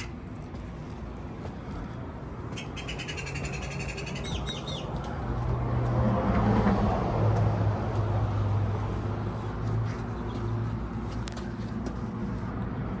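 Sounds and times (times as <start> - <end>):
passing motor vehicle: 0.0 - 13.0
small bird trilling and chirping: 2.6 - 4.9.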